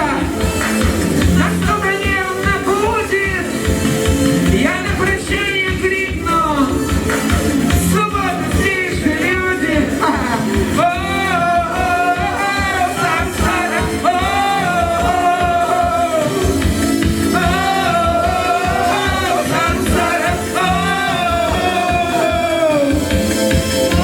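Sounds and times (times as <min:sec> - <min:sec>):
live band music: 0:00.0 - 0:24.0
steady drum beat: 0:00.0 - 0:24.0
person singing long notes: 0:08.8 - 0:23.3.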